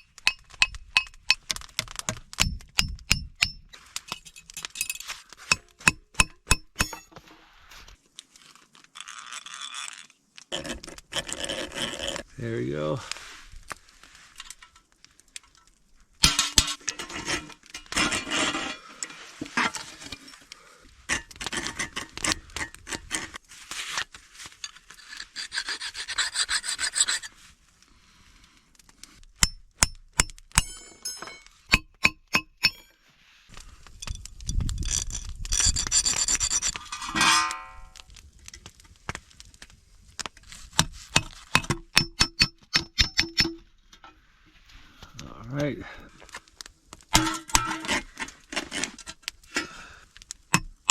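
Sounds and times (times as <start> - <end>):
scraping on steel: 16.2 - 20.5, 21.1 - 27.5, 33.5 - 38.0, 47.1 - 49.8
sharp strikes on metal: 29.4 - 32.9.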